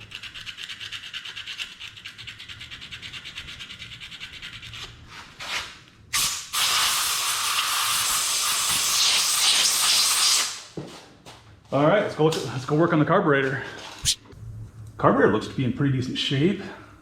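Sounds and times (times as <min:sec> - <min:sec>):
sandpaper rubbing: 0:00.0 - 0:05.7.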